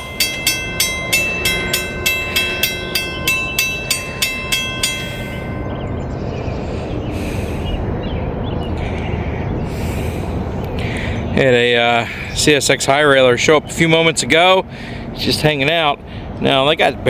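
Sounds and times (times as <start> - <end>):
crossing bell ringing: 0.0 - 7.0
freight train rumble: 0.0 - 17.0.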